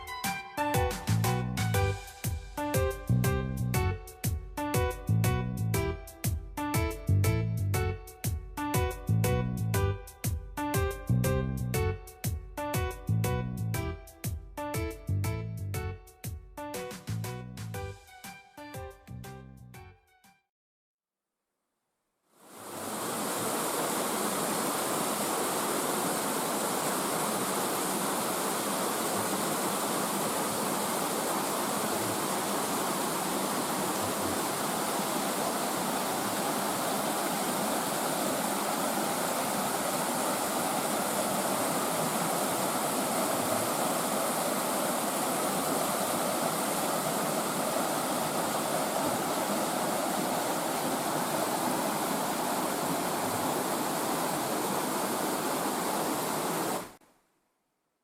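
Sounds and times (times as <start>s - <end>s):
stream rushing over rocks: 22.5s - 57.0s.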